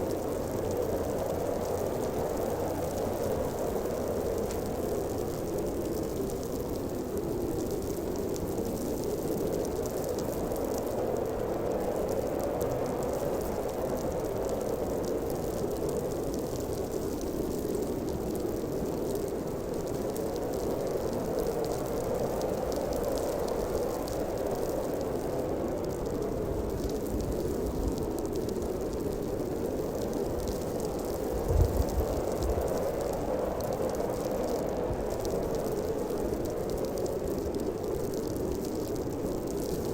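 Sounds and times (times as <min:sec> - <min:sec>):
faint crackling hiss: 0:00.0 - 0:39.9
strong wind blowing: 0:31.3 - 0:33.8.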